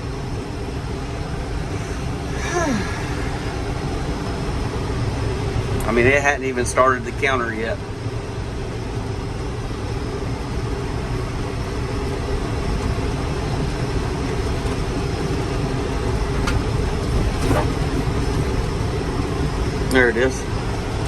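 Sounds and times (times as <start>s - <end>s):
tractor engine running under load: 9.4s - 21.0s.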